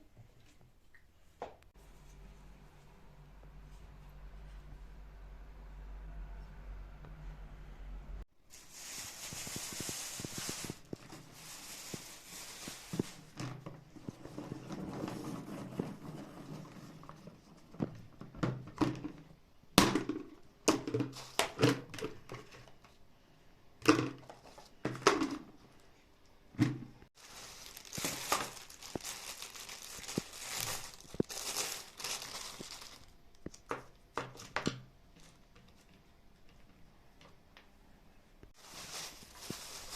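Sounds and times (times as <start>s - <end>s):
packaging crinkling and tearing: 8.5s - 13.4s, 27.2s - 33.7s, 38.6s - 39.9s
objects knocking and thunking: 12.9s - 22.9s, 23.8s - 25.6s.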